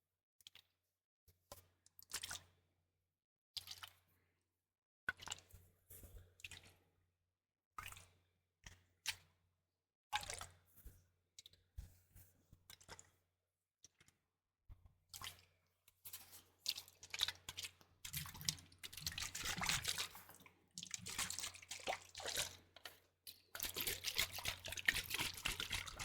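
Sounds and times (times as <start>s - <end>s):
liquid sloshing and squishing: 16.1s - 26.0s.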